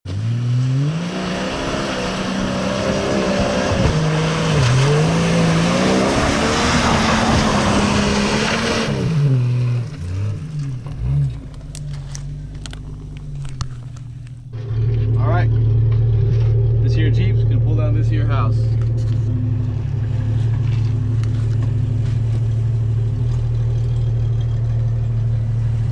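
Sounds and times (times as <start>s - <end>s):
car engine revving: 0.1s - 25.9s.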